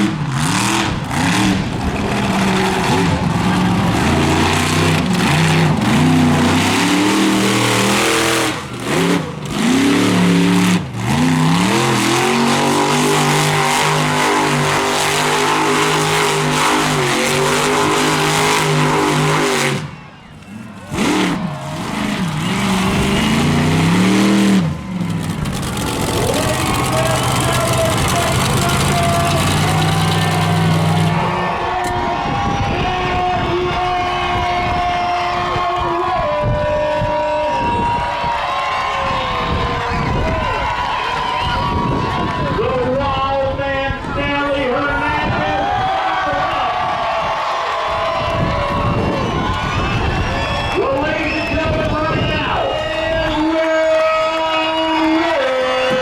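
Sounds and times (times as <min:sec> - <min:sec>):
truck engine revving hard: 0:00.0 - 0:35.8.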